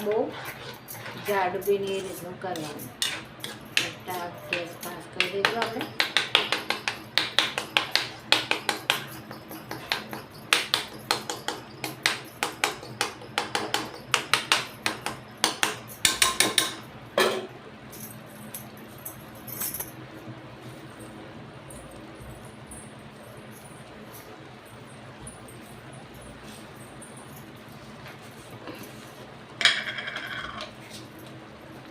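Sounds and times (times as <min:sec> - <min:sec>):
metal spoon clinking against pan: 0:00.0 - 0:17.5.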